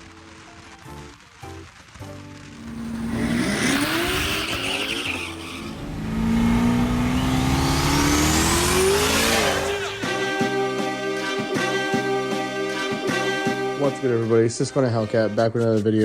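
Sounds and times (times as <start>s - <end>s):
turbo whistle: 2.6s - 10.0s
car engine accelerating hard: 2.6s - 10.1s.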